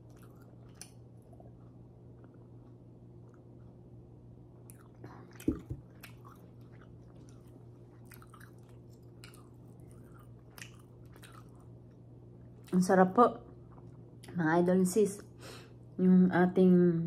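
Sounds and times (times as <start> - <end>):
chewing and wet mouth smacks: 0.0 - 3.8, 4.6 - 12.8
faint steady hum: 0.0 - 17.0.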